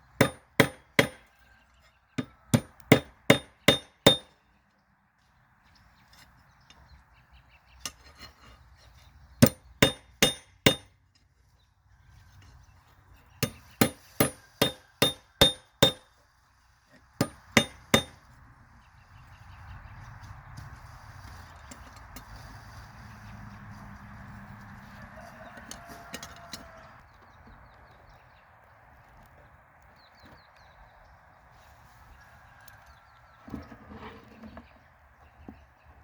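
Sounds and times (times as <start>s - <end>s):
hammer ringing on metal: 0.2s - 1.2s, 2.5s - 4.4s, 9.4s - 10.9s, 13.4s - 16.0s, 17.2s - 18.2s.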